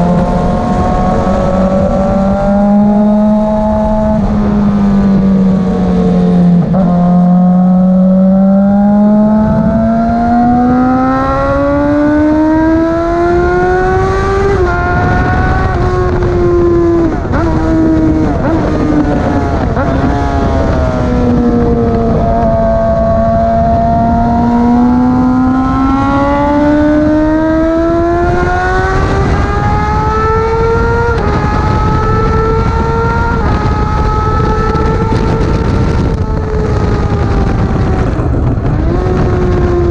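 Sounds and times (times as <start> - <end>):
motorcycle engine at speed: 0.0 - 39.9
wind noise rushing: 0.0 - 39.9.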